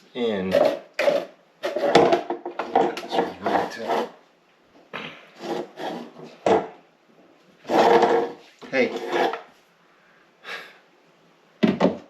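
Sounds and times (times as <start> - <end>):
plastic fittings rubbing and scraping: 0.4 - 4.2, 5.4 - 6.4, 7.6 - 9.5.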